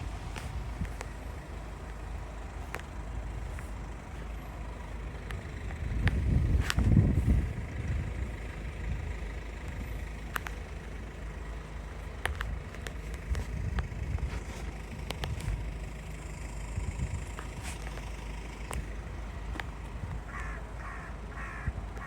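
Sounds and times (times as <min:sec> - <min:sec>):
vehicle engine rumbling: 0:00.0 - 0:22.0
light clicks: 0:10.3 - 0:10.6, 0:12.2 - 0:15.6.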